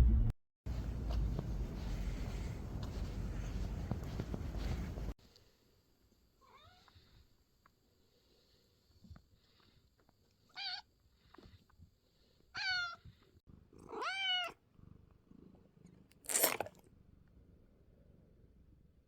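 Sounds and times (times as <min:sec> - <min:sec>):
cat meowing: 0:12.6 - 0:13.0, 0:13.9 - 0:14.6.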